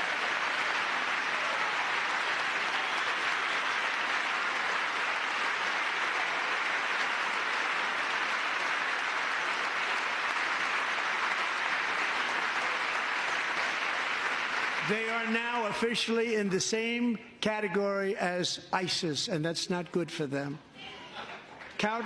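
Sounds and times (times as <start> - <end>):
audience applauding: 0.0 - 16.6, 21.2 - 22.0.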